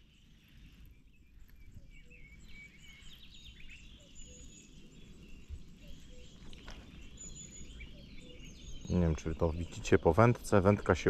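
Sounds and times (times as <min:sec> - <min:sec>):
small bird singing: 0:00.0 - 0:11.0.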